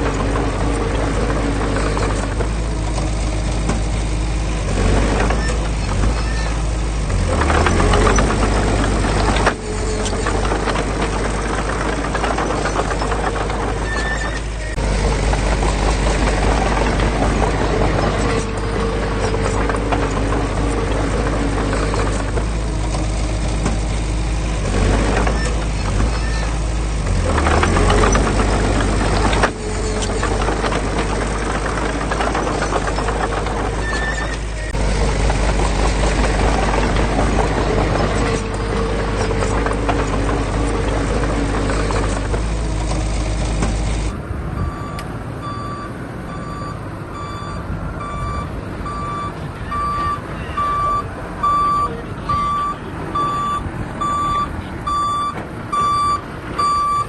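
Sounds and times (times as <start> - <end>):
diesel engine drone: 0.0 - 57.0
rapid clattering knocks: 4.7 - 44.1.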